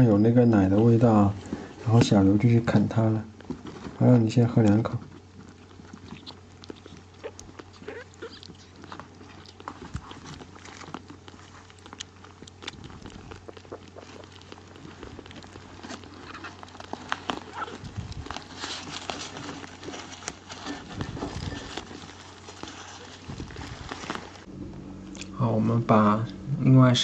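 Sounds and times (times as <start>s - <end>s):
kitten lapping milk: 5.1s - 24.0s.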